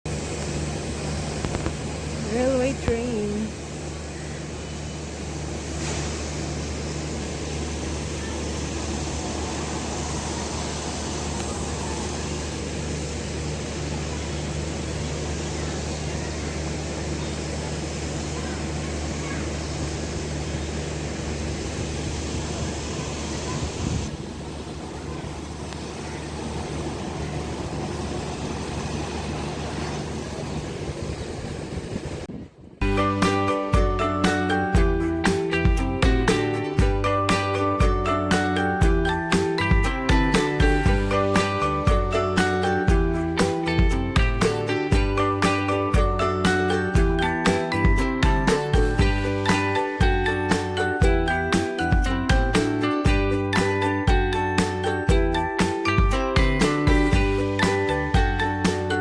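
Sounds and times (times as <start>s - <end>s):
low humming tone: 0.1s - 59.0s
train rumble and hiss: 0.1s - 59.0s.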